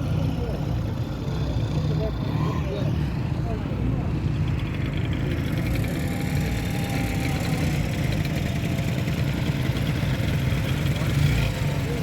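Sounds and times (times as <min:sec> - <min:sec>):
motorcycle engine idling: 0:04.5 - 0:12.0.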